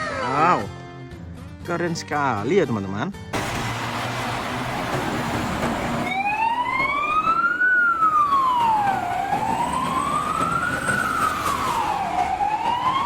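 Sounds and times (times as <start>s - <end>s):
fire engine siren wailing: 3.4s - 13.0s.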